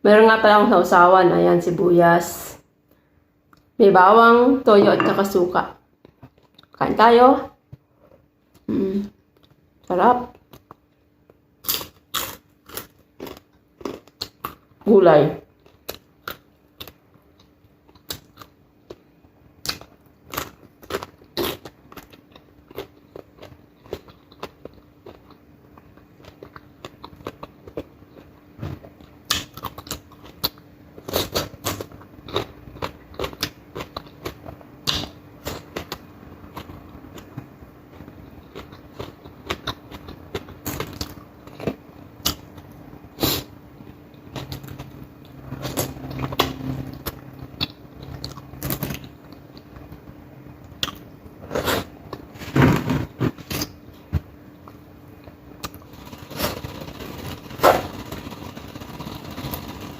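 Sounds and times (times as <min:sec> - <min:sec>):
chewing crisp food: 0:10.3 - 0:14.8, 0:15.5 - 0:43.4, 0:44.1 - 0:52.3, 0:54.6 - 0:59.9.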